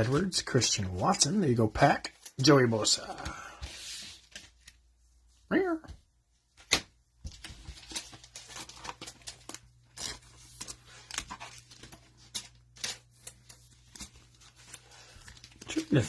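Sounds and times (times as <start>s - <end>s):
cards rustling: 6.6s - 16.0s
cellophane wrapper crinkling: 7.4s - 16.0s.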